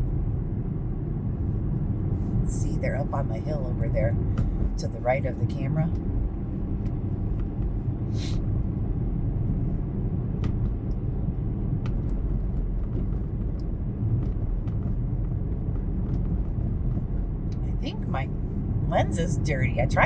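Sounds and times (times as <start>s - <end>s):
car engine and cabin rumble: 0.0s - 20.0s.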